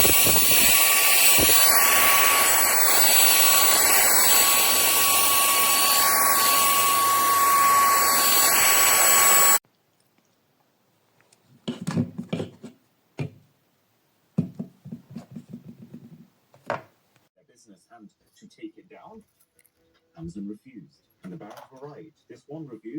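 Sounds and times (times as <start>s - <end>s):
handheld vacuum motor whining: 0.0s - 9.6s.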